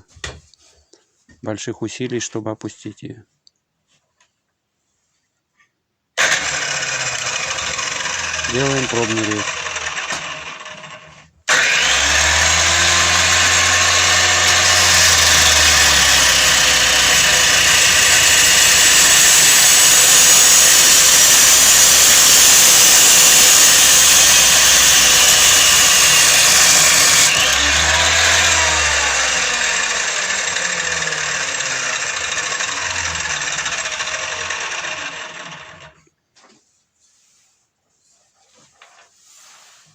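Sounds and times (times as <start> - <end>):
grinder cutting metal: 6.2 - 36.0
grinder motor winding down: 6.2 - 36.0.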